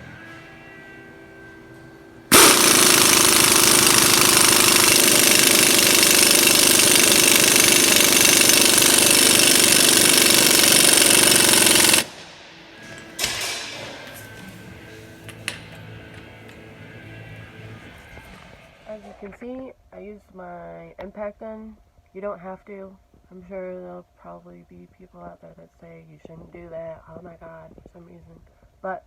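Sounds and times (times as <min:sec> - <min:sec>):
impact wrench hammering: 0:02.3 - 0:18.6.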